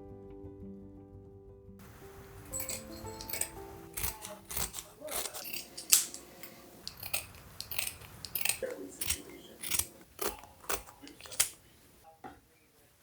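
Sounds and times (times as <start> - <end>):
sharp clicks and snaps: 1.8 - 12.0.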